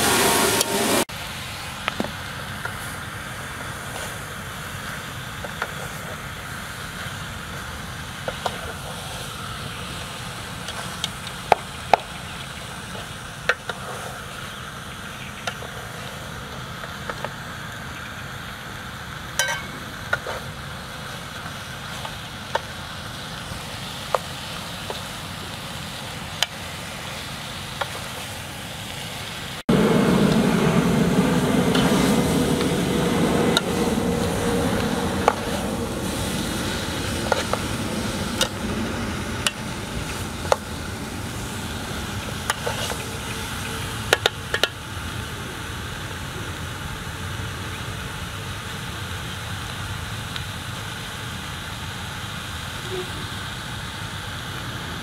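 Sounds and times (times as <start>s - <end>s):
chicken sizzling in a pot: 0.0s - 29.6s, 31.7s - 55.0s
loud dense frying: 0.0s - 55.0s.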